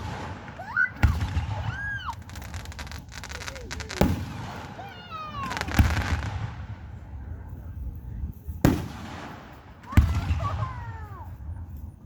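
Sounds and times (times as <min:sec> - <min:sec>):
fireworks crackling: 0:00.0 - 0:11.4.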